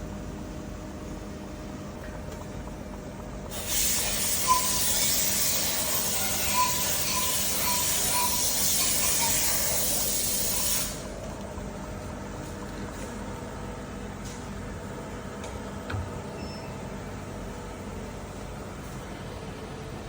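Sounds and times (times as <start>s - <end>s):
pressurised jet hissing: 3.5s - 11.1s.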